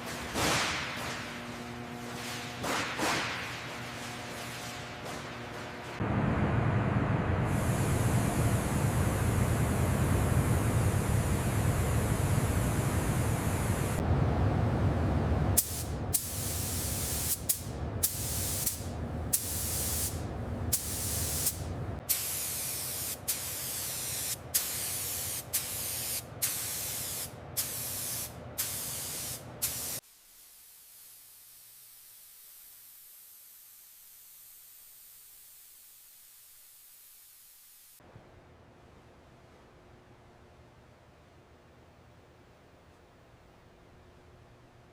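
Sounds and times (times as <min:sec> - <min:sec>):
short spray bursts: 0:15.6 - 0:31.3
pressurized spray hissing: 0:15.6 - 0:31.7.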